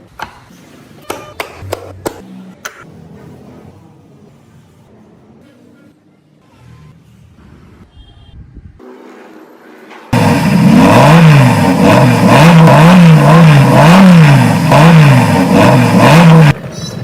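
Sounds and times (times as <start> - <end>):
car engine revving: 10.1 - 16.7.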